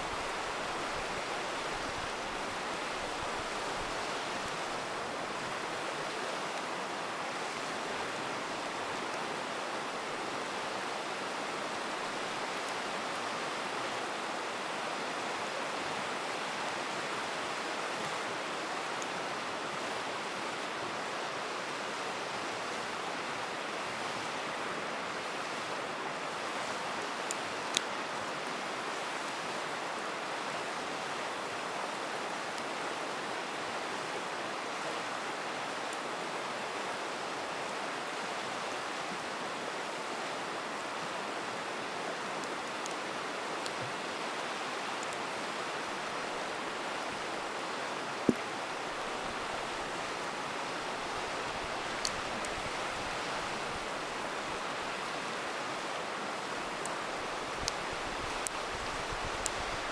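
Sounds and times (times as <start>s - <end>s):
river rushing: 0.0s - 59.9s
campfire crackling and popping: 48.1s - 55.2s, 56.7s - 59.9s.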